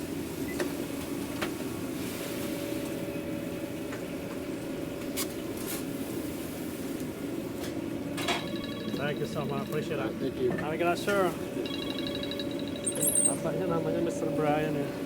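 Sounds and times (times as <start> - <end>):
mechanical equipment hum: 7.7 - 15.0.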